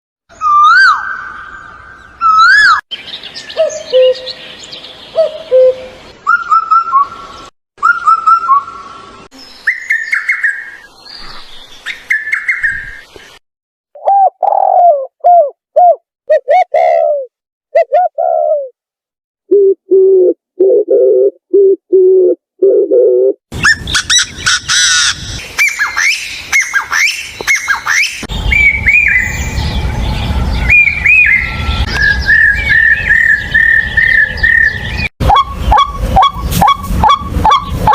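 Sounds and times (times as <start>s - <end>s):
whistled bird phrases: 5.2s - 8.8s, 25.6s - 29.8s, 30.6s - 36.8s
low repeated bird notes: 20.7s - 37.9s
birds chirping: 23.6s - 37.9s.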